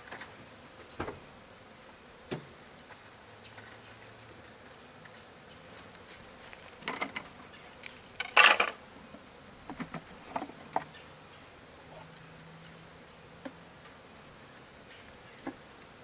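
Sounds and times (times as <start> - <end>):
bees buzzing: 0.0 - 16.0
tools clinking and scraping wood: 6.7 - 8.8.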